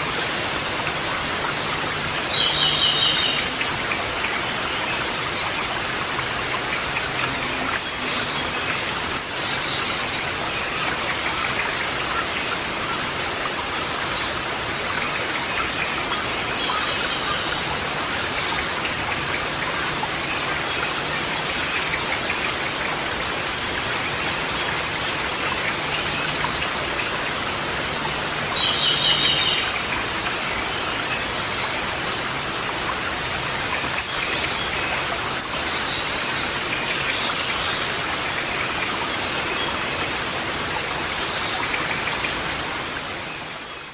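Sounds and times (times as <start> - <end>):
wild birds calling: 1.3 - 12.7.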